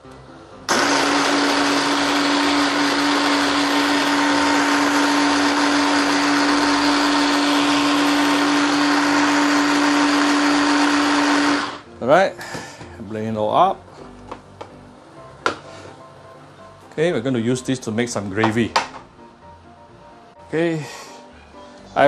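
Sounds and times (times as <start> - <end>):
hand blender motor hum: 0.7 - 11.8.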